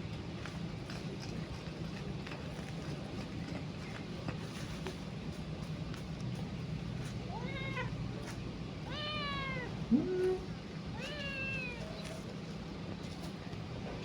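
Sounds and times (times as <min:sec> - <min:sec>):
kitten meowing: 0:08.9 - 0:10.4, 0:11.0 - 0:12.1.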